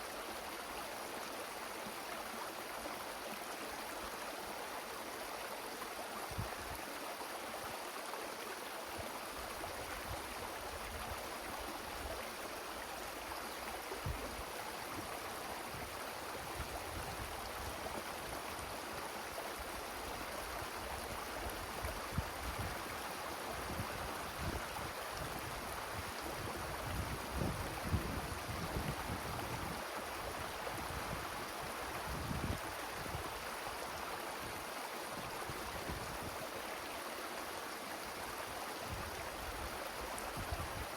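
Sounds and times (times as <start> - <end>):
wind rushing through trees: 6.2 - 7.8, 8.9 - 40.9
wind buffeting microphone: 26.4 - 29.8.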